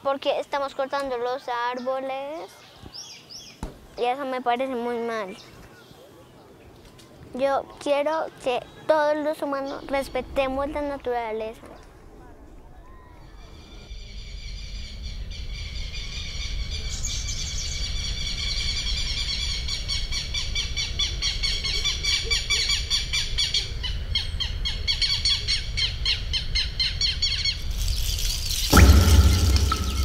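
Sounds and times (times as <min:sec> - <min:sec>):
birds chirping: 0:04.8 - 0:12.0
low rumble: 0:28.7 - 0:30.0.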